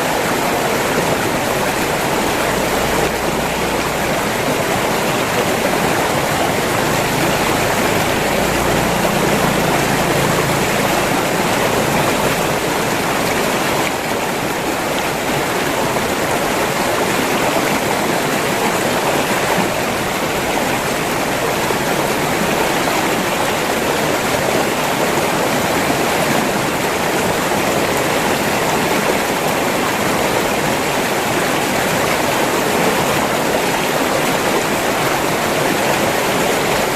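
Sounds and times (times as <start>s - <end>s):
river rushing over rocks: 0.0s - 36.9s.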